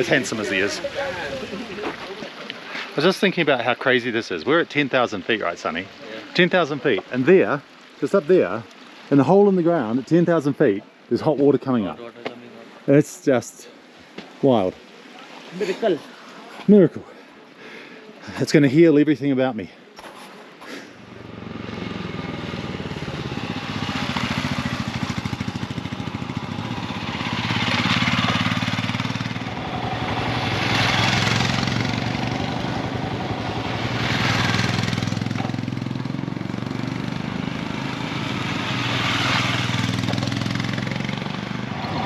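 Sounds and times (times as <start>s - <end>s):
wind and road noise: 0.0s - 13.0s, 20.0s - 42.0s
motorcycle engine running: 21.1s - 42.0s.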